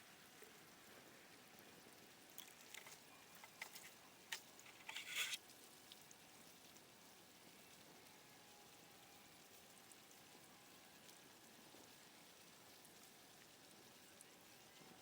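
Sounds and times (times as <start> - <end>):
faint short clicks and crackles: 2.3 - 6.1.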